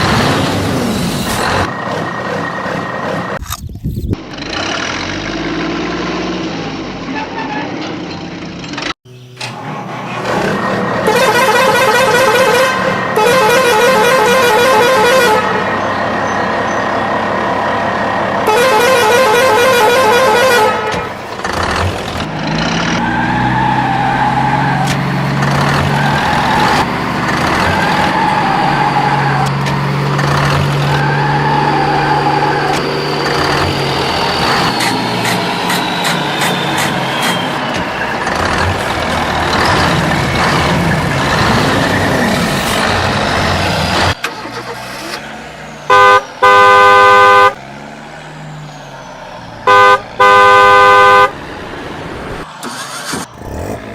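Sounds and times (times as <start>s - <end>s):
engine-like hum: 0.0s - 53.9s
truck horn honking: 9.1s - 42.0s, 45.8s - 48.0s, 49.6s - 51.6s.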